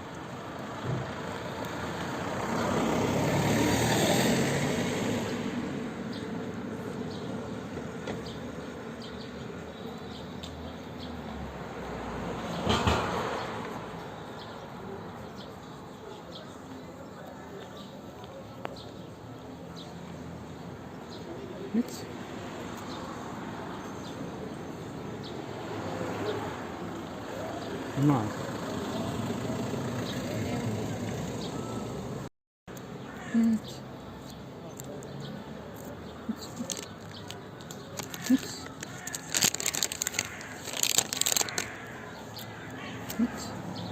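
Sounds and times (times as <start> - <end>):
street traffic: 0.0 - 43.9
small birds chirping: 6.0 - 11.5, 32.7 - 43.9.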